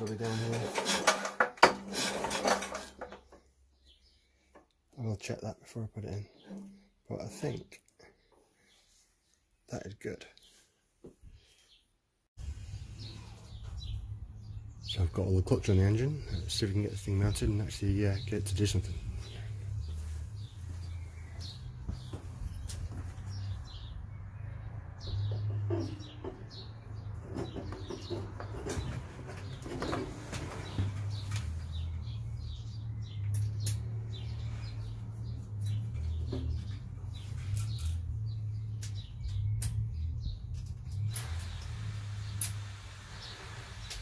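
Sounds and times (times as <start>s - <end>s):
small birds chirping: 3.2s - 44.0s.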